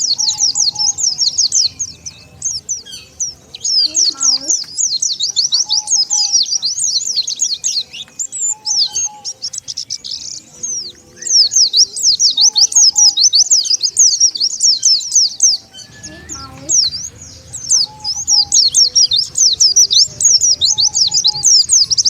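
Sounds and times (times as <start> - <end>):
flock of birds twittering: 0.0 - 22.0.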